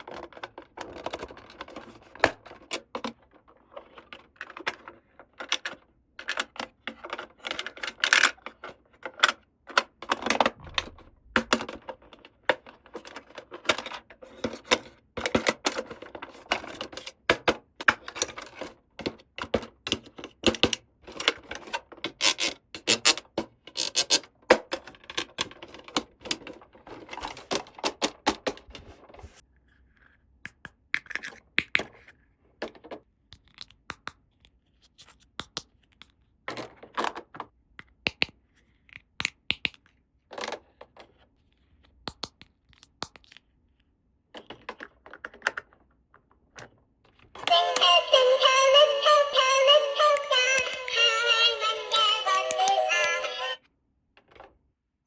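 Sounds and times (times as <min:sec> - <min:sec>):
plastic toy pieces clicking: 0:11.4 - 0:26.6.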